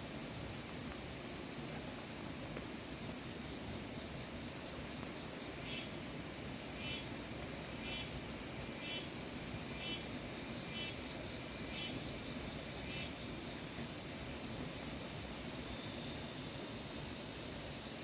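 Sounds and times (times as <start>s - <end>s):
high-pitched insect drone: 5.2s - 18.0s.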